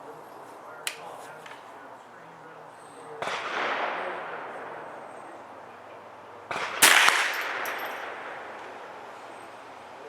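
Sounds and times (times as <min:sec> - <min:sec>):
gunshot echo: 0:03.1 - 0:10.0
rifle shot: 0:03.2 - 0:10.0.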